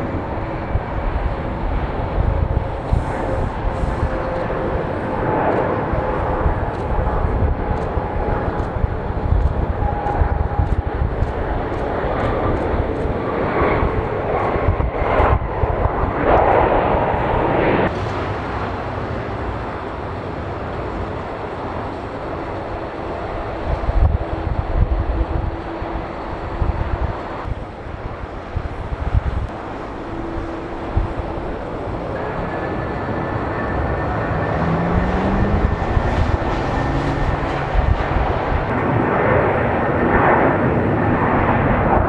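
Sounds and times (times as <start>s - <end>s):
jet engines at takeoff power: 0.0s - 42.0s.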